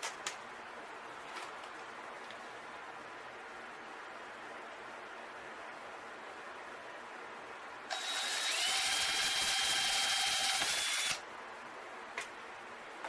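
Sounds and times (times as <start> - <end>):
electric drill whining: 7.9 - 11.2.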